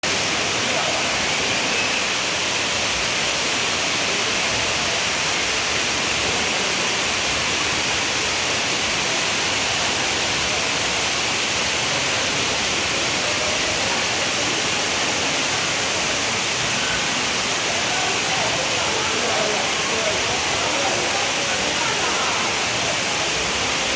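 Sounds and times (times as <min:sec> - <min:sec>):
waterfall pouring: 0:00.0 - 0:23.9.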